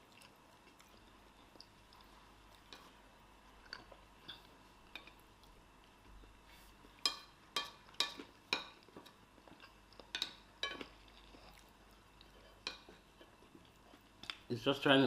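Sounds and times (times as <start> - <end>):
cutlery clinking on a plate: 7.0 - 8.8.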